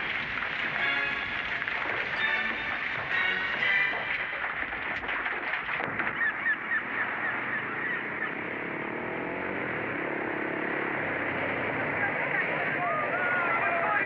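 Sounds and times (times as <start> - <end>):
honking bird calls: 6.0 - 8.5.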